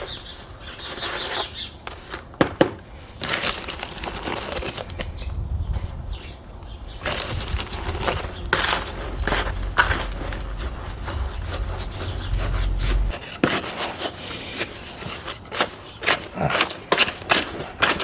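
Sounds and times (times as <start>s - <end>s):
sand and cement scraping in bucket: 0.2s - 2.3s, 7.0s - 18.0s.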